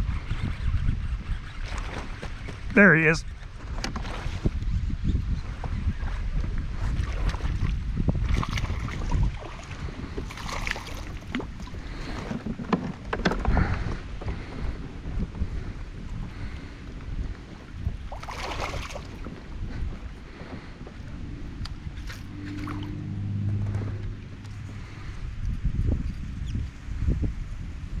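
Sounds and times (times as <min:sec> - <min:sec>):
wind on microphone: 0:00.0 - 0:28.0
water sounds: 0:06.8 - 0:13.2, 0:16.3 - 0:25.6.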